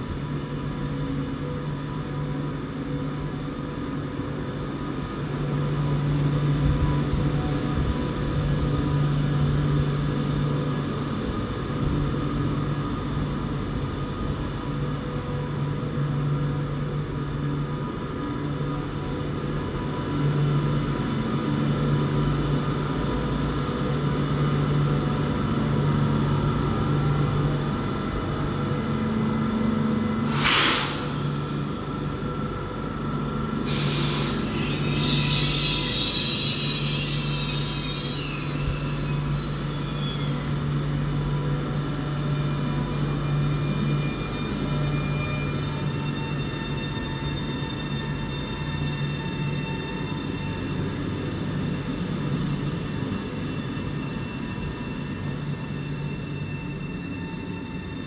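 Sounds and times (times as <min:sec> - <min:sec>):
train machinery hum: 0:00.0 - 0:58.0
short sharp hiss: 0:30.2 - 0:31.2.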